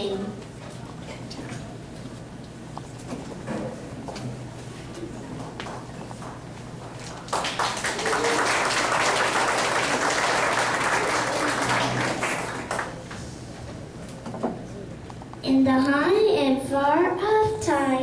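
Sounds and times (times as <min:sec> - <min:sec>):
audience applauding: 0:05.4 - 0:13.2.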